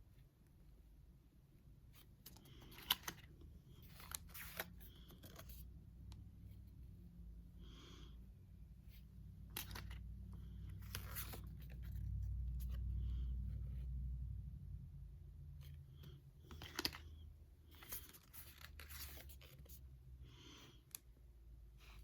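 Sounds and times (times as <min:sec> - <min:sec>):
cards rustling: 0:01.9 - 0:06.8, 0:08.9 - 0:13.8, 0:15.6 - 0:21.1.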